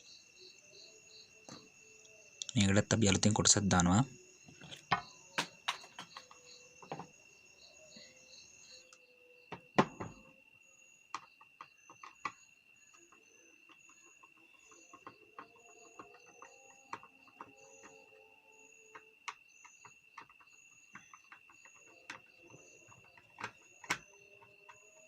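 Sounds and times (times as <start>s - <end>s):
insects trilling: 0.0s - 25.0s
clicks and knocks of handled parts: 4.5s - 7.1s, 13.7s - 18.0s, 18.9s - 25.0s.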